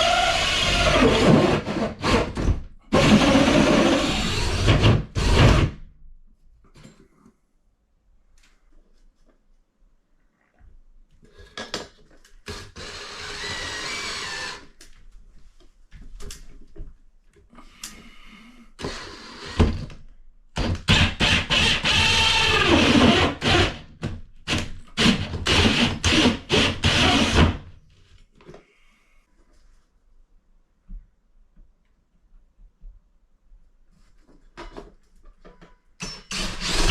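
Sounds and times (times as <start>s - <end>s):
power tool cutting drywall: 0.0s - 5.8s, 12.6s - 14.7s, 20.6s - 23.8s, 24.5s - 27.6s, 36.3s - 36.9s.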